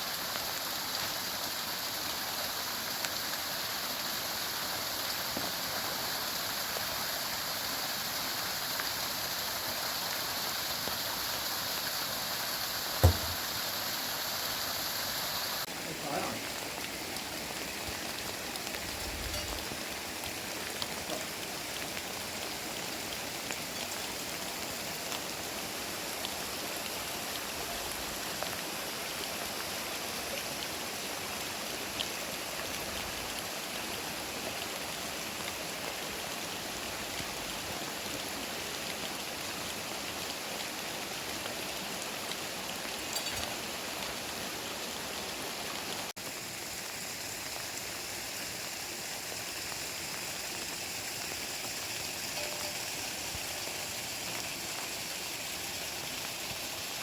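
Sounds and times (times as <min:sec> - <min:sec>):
heavy rain falling: 0:04.5 - 0:47.5.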